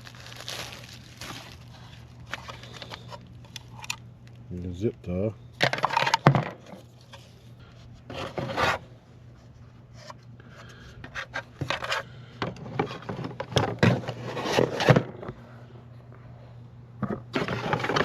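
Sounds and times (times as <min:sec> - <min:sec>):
steady low hum: 0:00.0 - 0:18.0
rubbing and scraping of parts: 0:01.3 - 0:04.0, 0:05.6 - 0:15.3, 0:17.0 - 0:18.0.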